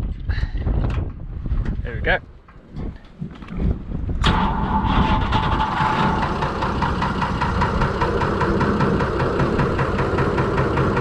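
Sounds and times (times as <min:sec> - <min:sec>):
high steady whine: 0:04.2 - 0:11.0
diesel tractor engine idling: 0:04.5 - 0:11.0.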